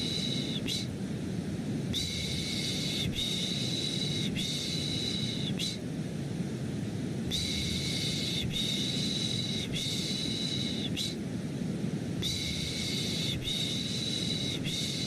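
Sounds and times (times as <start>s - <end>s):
white noise: 0.0s - 15.0s.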